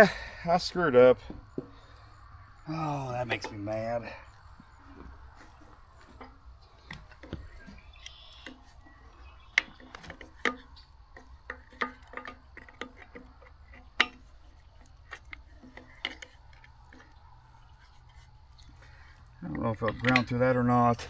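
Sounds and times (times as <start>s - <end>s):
steel pieces clicking and knocking: 6.9s - 17.2s, 17.8s - 21.0s.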